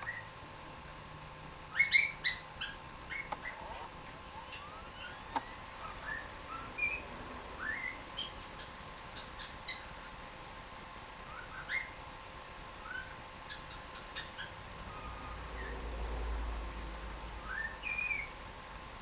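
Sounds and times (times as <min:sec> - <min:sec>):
cockatiel whistling and chirping: 0:01.7 - 0:03.6, 0:04.3 - 0:09.9, 0:11.3 - 0:12.0, 0:12.8 - 0:15.7, 0:17.4 - 0:18.3.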